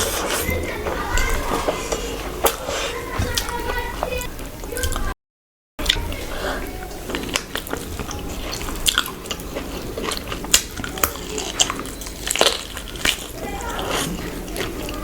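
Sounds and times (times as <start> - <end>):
wet chewing and mouth smacks: 5.8 - 15.0.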